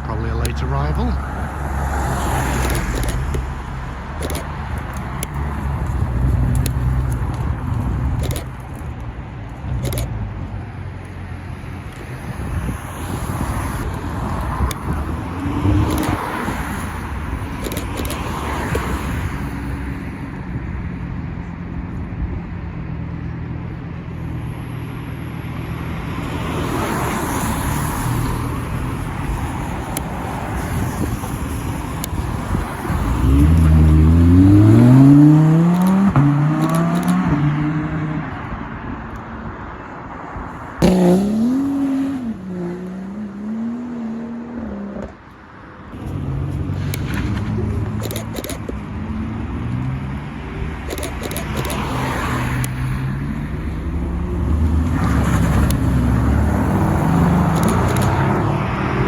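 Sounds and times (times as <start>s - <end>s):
car accelerating hard: 32.9s - 38.3s, 40.8s - 45.1s.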